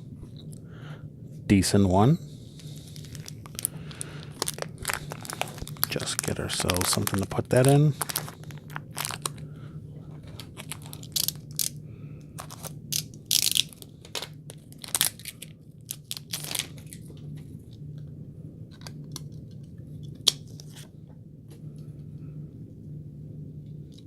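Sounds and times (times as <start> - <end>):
steady low hum: 0.0 - 24.0
plastic card protector rustling: 2.6 - 9.5, 10.1 - 17.2.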